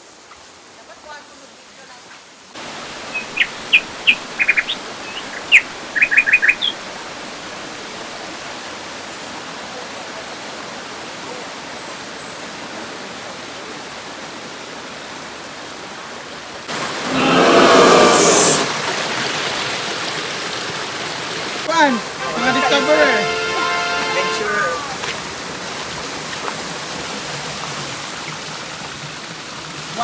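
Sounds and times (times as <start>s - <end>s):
waterfall rushing: 2.6s - 8.4s, 16.7s - 19.2s, 19.8s - 25.6s
bird chirping: 3.0s - 6.8s.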